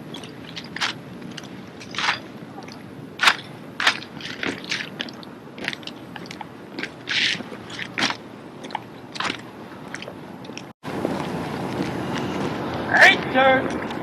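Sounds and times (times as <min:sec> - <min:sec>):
rifles clacking and slapping: 0:00.1 - 0:02.3, 0:03.2 - 0:06.3.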